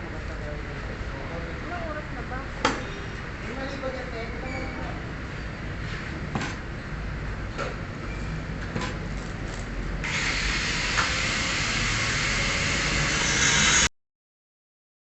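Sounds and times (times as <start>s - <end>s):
loud metalworking hiss: 10.0s - 13.9s.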